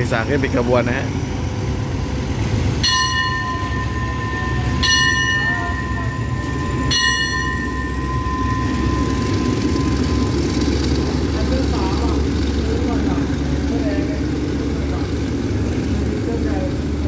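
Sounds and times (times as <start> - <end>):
diesel train engine rumbling: 0.0 - 17.0
steady high tone: 1.7 - 14.4
sharp ringing strikes: 2.8 - 11.0.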